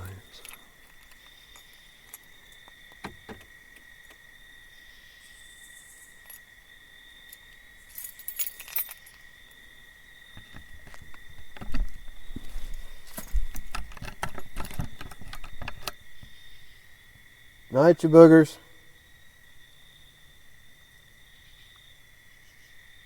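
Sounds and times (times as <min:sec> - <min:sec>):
handling thumps and rustling: 0:00.0 - 0:04.2, 0:10.4 - 0:16.3
rattly rustle: 0:00.0 - 0:04.3, 0:07.3 - 0:09.3, 0:10.4 - 0:16.3.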